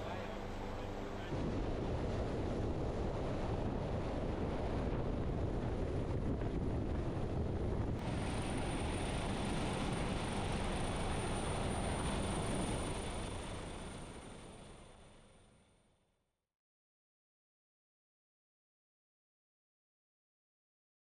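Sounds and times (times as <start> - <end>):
faint high whine: 0.0 - 4.0, 8.0 - 15.9
helicopter engine and rotor: 0.0 - 15.6.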